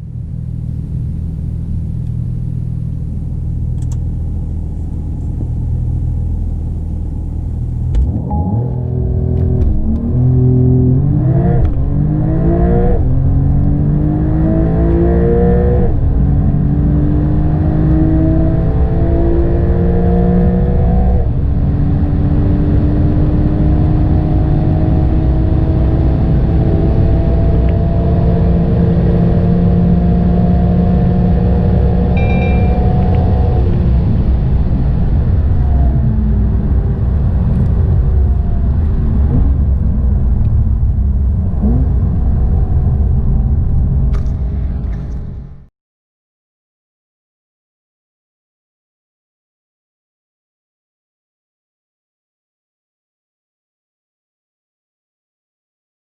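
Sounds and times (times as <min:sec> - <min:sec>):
car engine at full throttle: 0:00.0 - 0:45.7
road and wind noise: 0:00.0 - 0:45.7.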